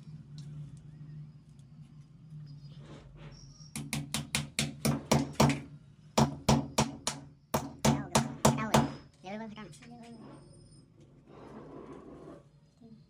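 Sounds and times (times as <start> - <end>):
low steady hum: 0.0 - 13.0
sharp ringing knocks: 3.7 - 9.1.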